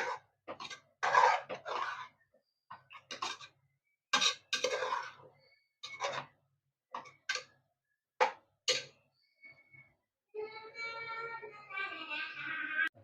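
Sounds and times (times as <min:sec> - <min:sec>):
spoon scraping in cooking pan: 0:00.0 - 0:07.6, 0:08.2 - 0:08.9.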